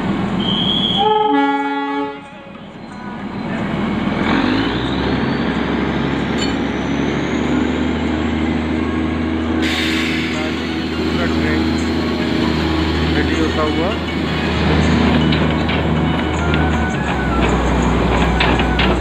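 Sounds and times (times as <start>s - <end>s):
diesel engine hum: 0.0s - 19.0s
train horn: 0.4s - 2.5s
train rolling: 2.1s - 19.0s.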